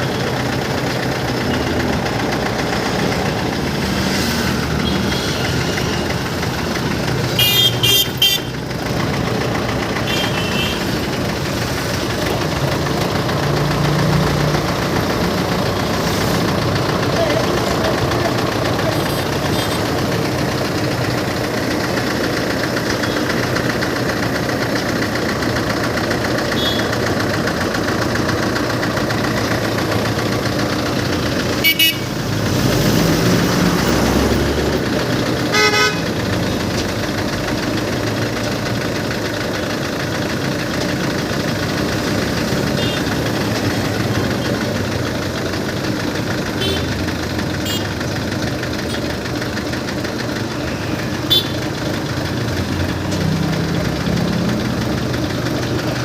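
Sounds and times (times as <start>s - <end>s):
engine running steadily: 0.0s - 56.0s
horn blasts: 7.4s - 8.5s, 31.6s - 32.2s, 35.5s - 36.1s, 51.3s - 51.6s.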